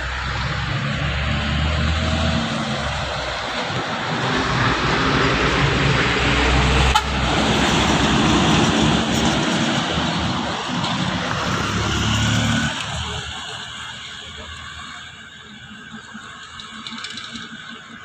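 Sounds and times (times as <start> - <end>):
road noise: 0.0 - 18.0
truck engine under load: 0.0 - 18.0.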